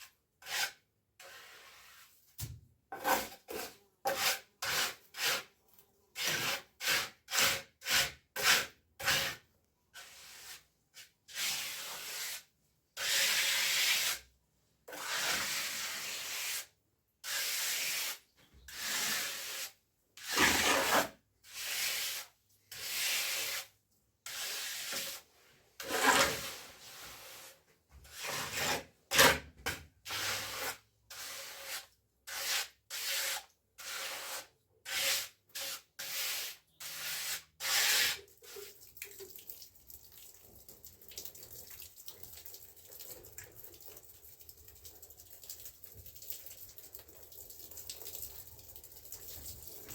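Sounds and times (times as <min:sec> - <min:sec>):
hand tool scraping gritty surface: 0:00.4 - 0:02.1, 0:02.9 - 0:05.5, 0:06.2 - 0:09.4, 0:10.0 - 0:14.2, 0:14.9 - 0:38.2.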